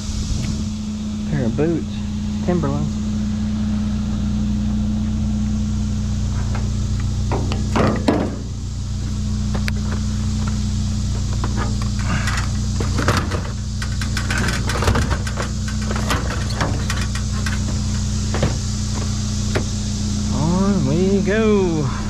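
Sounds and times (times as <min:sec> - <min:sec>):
truck engine idling: 0:00.0 - 0:22.0
junk being handled: 0:06.4 - 0:08.5, 0:09.5 - 0:19.8.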